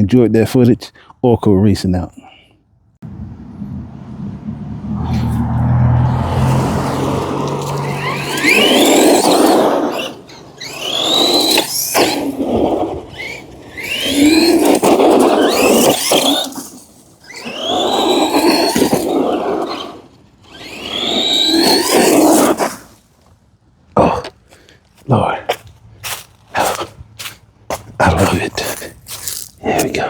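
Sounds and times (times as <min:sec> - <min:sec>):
rc truck motor whining: 0:05.0 - 0:23.1.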